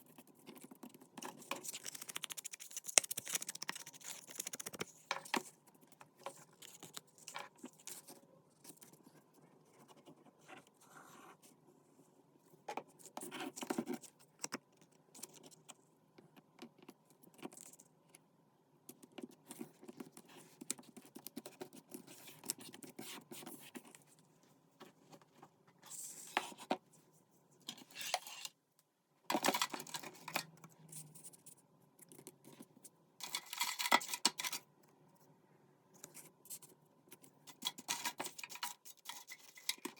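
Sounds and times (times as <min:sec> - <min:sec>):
light taps clicks and scrapes: 0:18.9 - 0:27.0.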